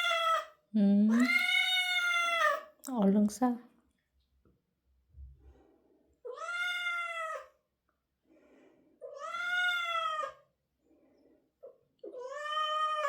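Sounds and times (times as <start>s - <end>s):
cat yowling: 0.0s - 0.5s, 1.2s - 2.7s, 6.3s - 7.5s, 9.1s - 10.4s, 12.1s - 13.0s.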